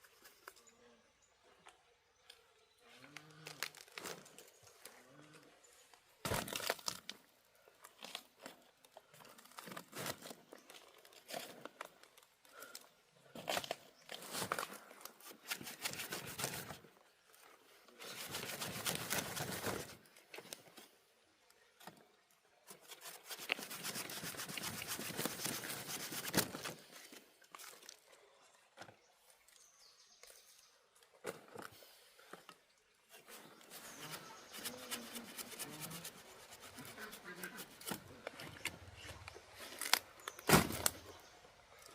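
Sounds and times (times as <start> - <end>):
rustling and crinkling: 3.0 - 5.2, 6.2 - 21.0, 22.7 - 28.1, 31.2 - 41.9.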